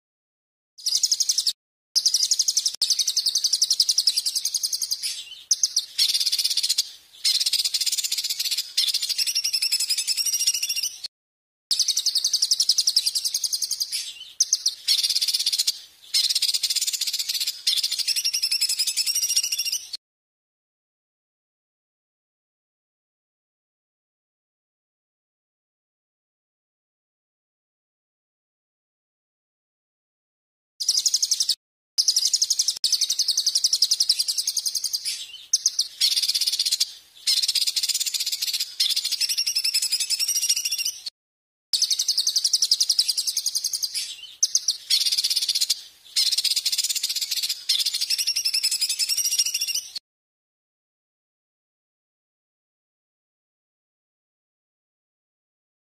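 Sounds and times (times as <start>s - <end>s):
songbird rapid trill: 0.8s - 11.1s, 11.7s - 20.0s, 30.8s - 41.1s, 41.8s - 50.0s.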